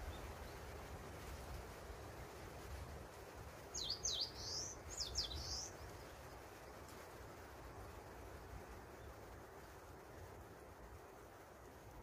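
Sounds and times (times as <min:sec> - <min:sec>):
songbird calling: 0:00.0 - 0:00.6, 0:03.7 - 0:06.4
low background noise: 0:00.0 - 0:12.0.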